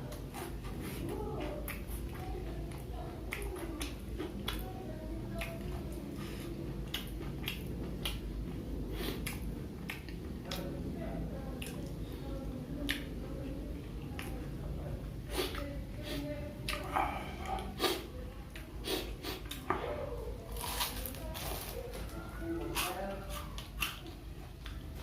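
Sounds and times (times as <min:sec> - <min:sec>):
person chewing fried snacks: 0:05.3 - 0:10.6, 0:20.4 - 0:25.0
mouth clicks and smacks: 0:06.8 - 0:08.3, 0:09.0 - 0:10.7.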